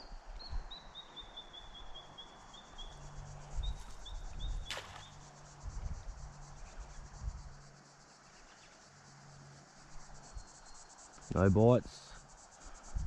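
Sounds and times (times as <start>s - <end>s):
faint insect chirring: 0.0s - 13.0s.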